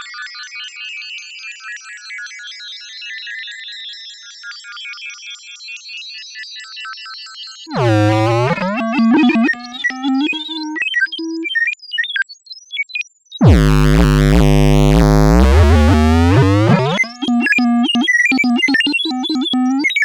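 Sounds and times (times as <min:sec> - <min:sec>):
low electronic buzz: 0:07.7 - 0:10.6, 0:13.4 - 0:19.8
robot beeps and chirps: 0:07.7 - 0:11.5, 0:13.4 - 0:20.0.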